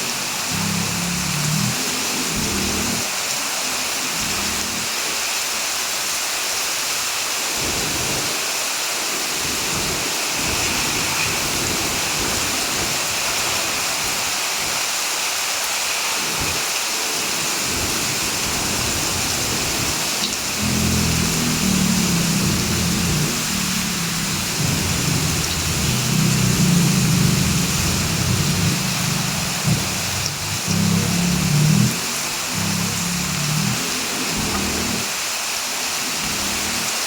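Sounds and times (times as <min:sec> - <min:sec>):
heavy rain falling: 0:00.0 - 0:37.0
low rumble: 0:20.6 - 0:35.1.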